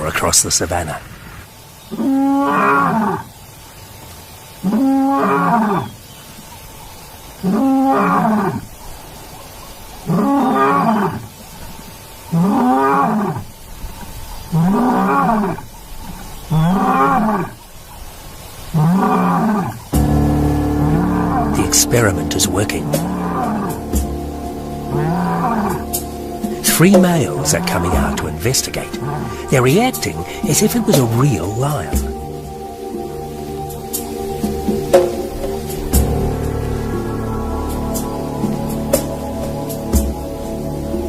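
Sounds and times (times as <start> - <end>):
lion roaring from loudspeaker: 18.8 - 28.2.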